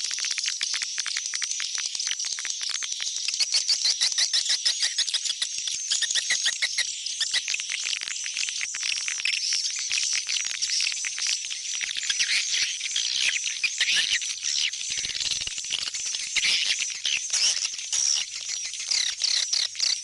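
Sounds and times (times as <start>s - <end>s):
swiftlets chirping and clicking: 6.6s - 20.0s.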